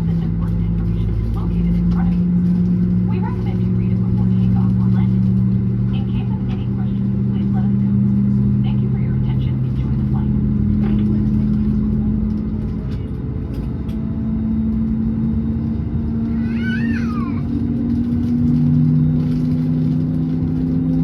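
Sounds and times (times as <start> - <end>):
aircraft cabin hum and rumble: 0.0 - 21.0.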